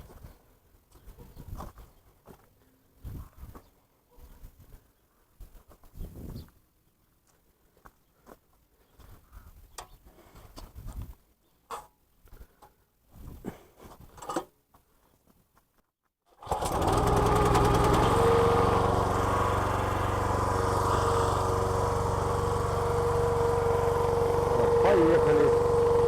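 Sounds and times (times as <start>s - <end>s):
small petrol engine running: 16.4s - 26.0s.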